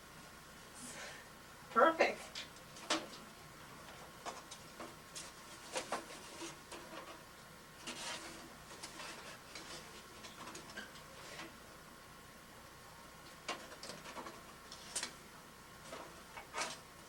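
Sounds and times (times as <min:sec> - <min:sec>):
rustling scrape in a pipe: 0:05.1 - 0:11.6.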